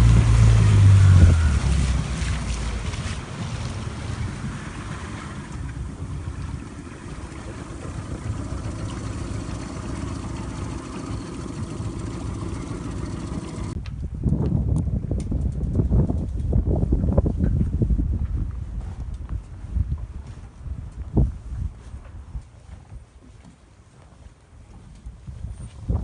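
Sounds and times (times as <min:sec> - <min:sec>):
outboard motor droning: 0:00.0 - 0:13.8
rushing water: 0:00.0 - 0:13.8
wind noise: 0:00.0 - 0:23.4, 0:24.0 - 0:26.0.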